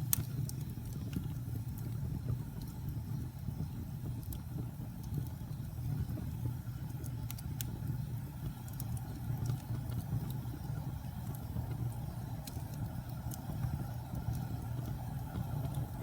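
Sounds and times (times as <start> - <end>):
burning wood crackling and popping: 0.0 - 16.0
rumble of campfire flames: 0.0 - 16.0.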